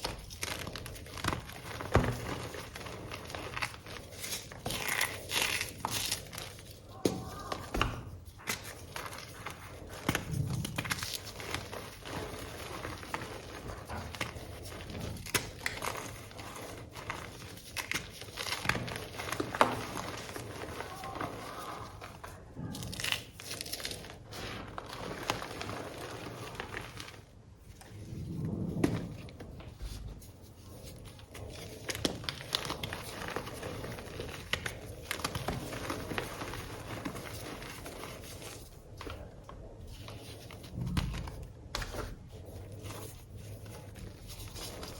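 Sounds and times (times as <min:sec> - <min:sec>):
chalk blocks crunching: 0:00.0 - 0:44.9.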